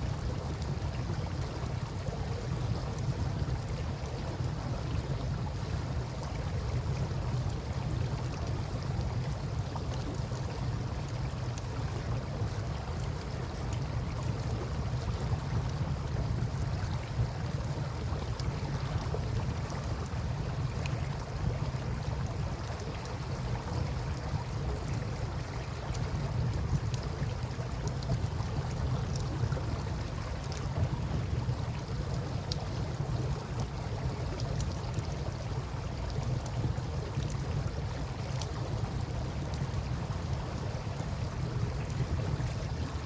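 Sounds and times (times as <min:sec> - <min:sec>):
campfire crackling: 0:09.0 - 0:43.0.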